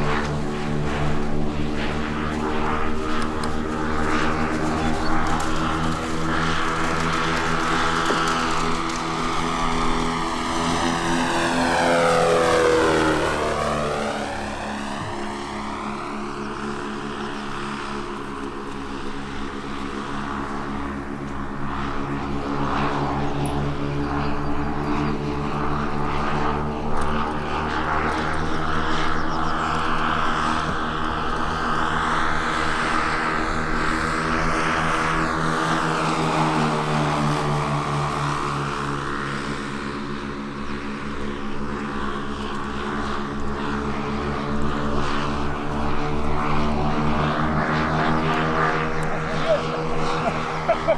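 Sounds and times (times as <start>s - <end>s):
model airplane engines droning: 0.0s - 50.9s.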